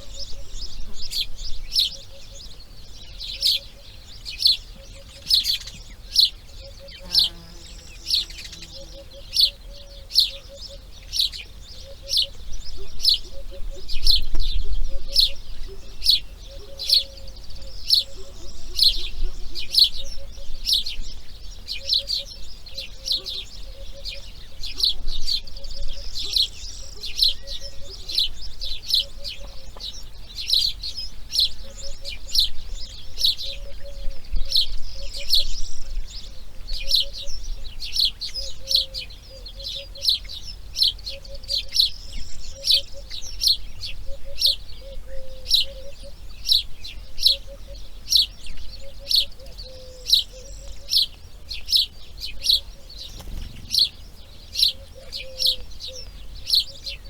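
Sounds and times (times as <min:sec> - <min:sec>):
birds chirping: 0:00.0 - 0:57.0
lower bird call in quick runs: 0:52.9 - 0:55.6.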